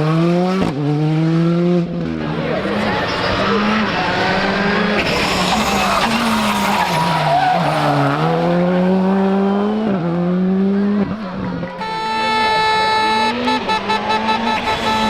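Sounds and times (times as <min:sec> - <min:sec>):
rally car engine revving: 0:00.0 - 0:15.0
tyres skidding and squealing: 0:02.2 - 0:09.3, 0:10.9 - 0:15.0.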